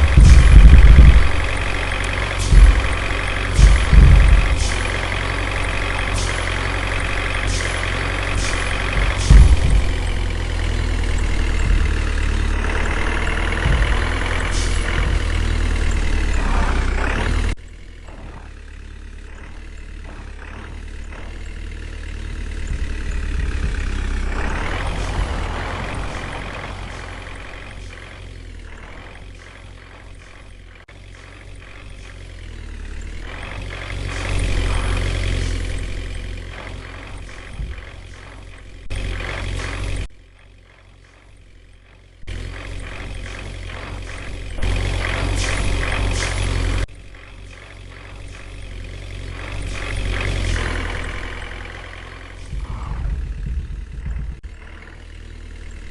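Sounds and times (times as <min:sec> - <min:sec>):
truck engine running: 0:00.0 - 0:55.9.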